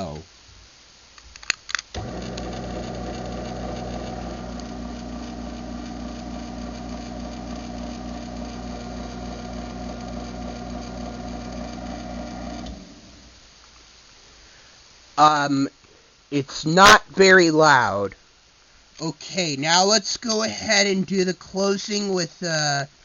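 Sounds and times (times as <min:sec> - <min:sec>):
garage door opener motor running: 0:02.0 - 0:13.3.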